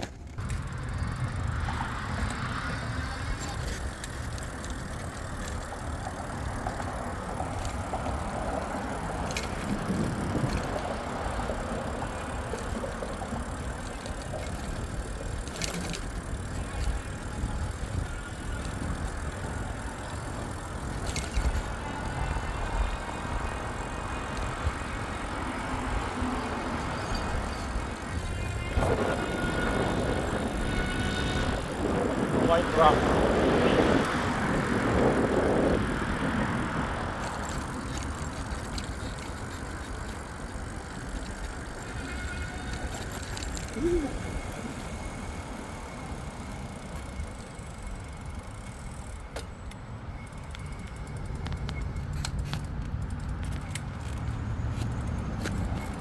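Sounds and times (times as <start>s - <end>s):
bike riding rumble: 0.0s - 56.0s
wind noise: 7.1s - 11.4s, 16.6s - 40.4s.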